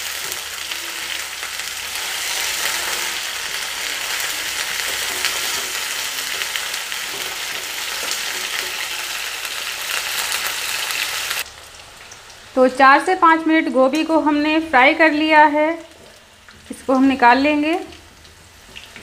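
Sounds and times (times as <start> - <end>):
vegetables sizzling in hot oil: 0.0 - 19.0
steel ladle scraping a pan: 1.9 - 9.2.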